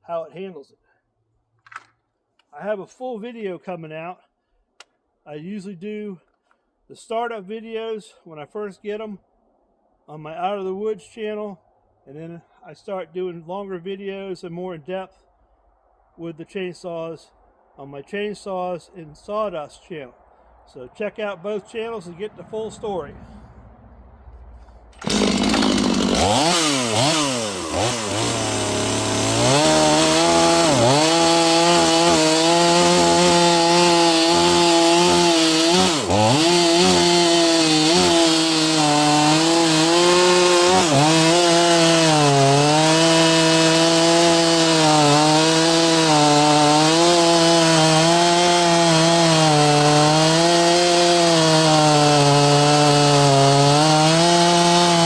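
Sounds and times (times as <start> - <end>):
chainsaw cutting into log: 25.0 - 55.0.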